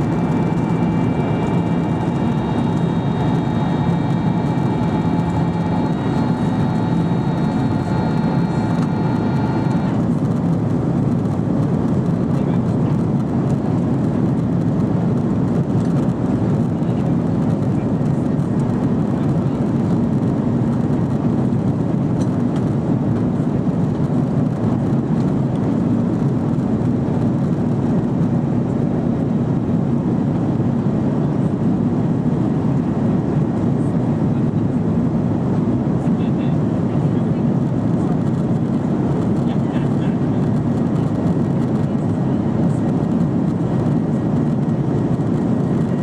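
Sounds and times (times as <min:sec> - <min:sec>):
jet engine drone in cabin: 0:00.0 - 0:46.0.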